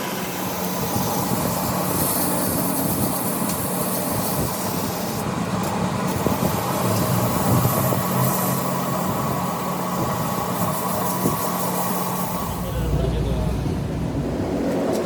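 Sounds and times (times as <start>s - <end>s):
machine humming: 12.0s - 15.0s.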